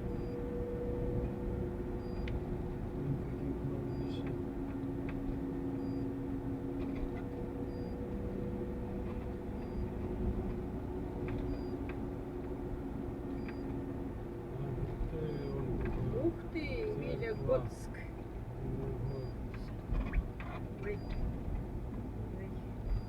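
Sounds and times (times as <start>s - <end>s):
road rumble: 0.0s - 23.0s
steady hum tones: 0.0s - 23.0s
van engine drone: 0.0s - 23.0s.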